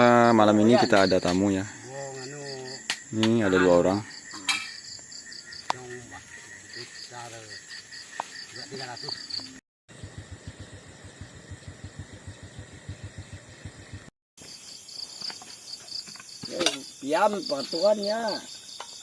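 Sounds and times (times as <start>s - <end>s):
crickets chirping: 0.0s - 19.0s
steady high insect buzz: 0.2s - 19.0s
fast low pulses: 9.9s - 14.1s.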